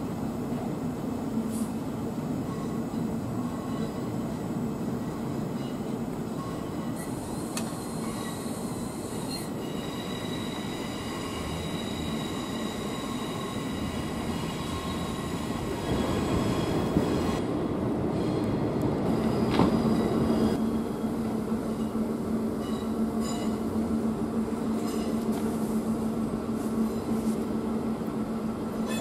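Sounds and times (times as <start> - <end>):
rumble of rails: 0.0 - 29.0
train wheels squealing: 2.4 - 4.2, 5.0 - 17.4, 19.1 - 20.6, 22.6 - 23.7.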